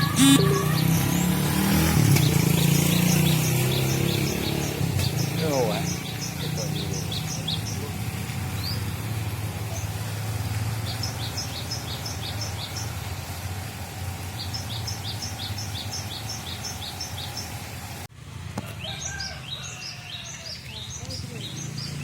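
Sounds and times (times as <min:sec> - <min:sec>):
bird singing two-note phrases: 0:00.0 - 0:01.0.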